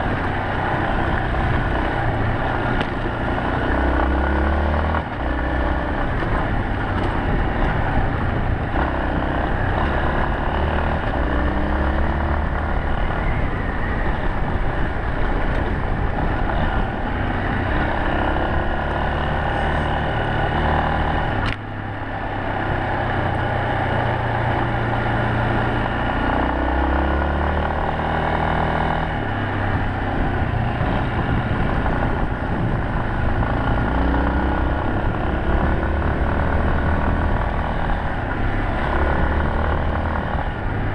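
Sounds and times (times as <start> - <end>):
motorcycle engine running: 0.0 - 40.9
wind and road noise: 0.0 - 40.9
sharp click: 21.4 - 21.6.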